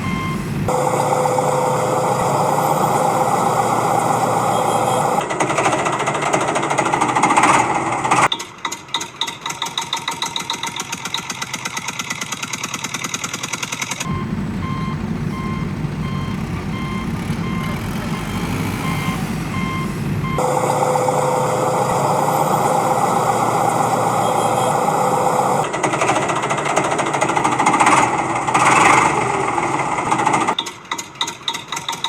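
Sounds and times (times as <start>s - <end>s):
low engine hum: 0.0s - 5.4s, 14.1s - 30.6s
truck reversing beeps: 0.0s - 8.5s, 13.8s - 31.4s
heavy machine running: 0.0s - 32.0s.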